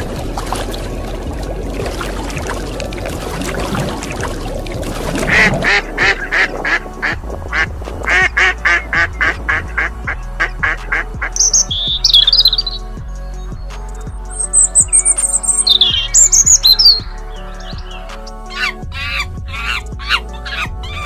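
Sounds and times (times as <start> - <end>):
background music: 0.0 - 21.0
waterfowl calling: 5.1 - 12.8, 14.4 - 21.0
high bird chirp: 11.4 - 12.8, 13.4 - 21.0.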